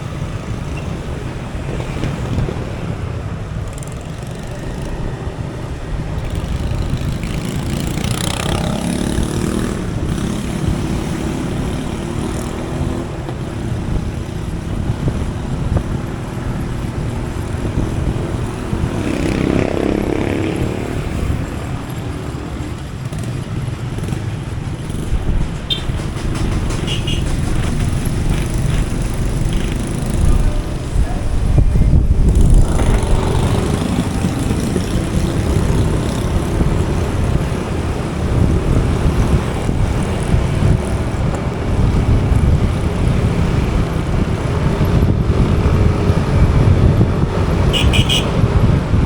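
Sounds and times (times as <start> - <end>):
vehicles passing: 0.0 - 49.0
wind and road noise: 0.0 - 49.0
motorcycle engine running: 6.1 - 49.0.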